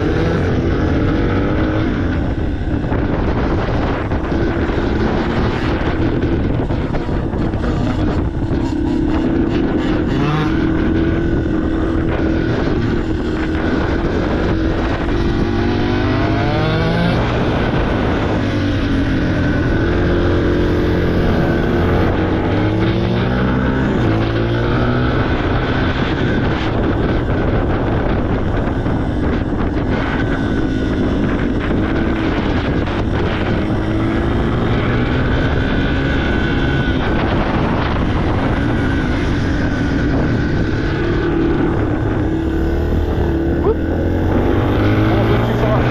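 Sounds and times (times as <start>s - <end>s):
dirt bike engine revving: 0.0s - 45.9s.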